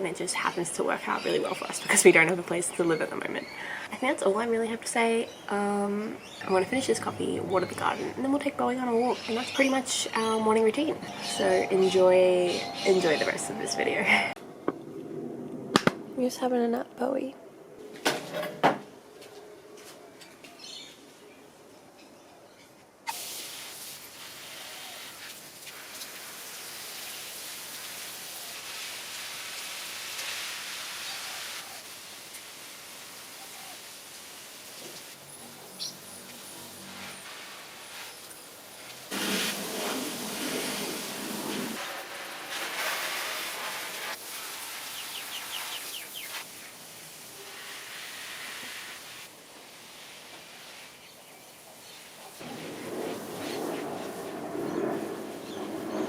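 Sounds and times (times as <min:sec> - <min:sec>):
garden hose spraying water: 0:00.0 - 0:14.3, 0:23.1 - 0:56.0
bird chirping: 0:05.2 - 0:14.3, 0:44.9 - 0:46.4.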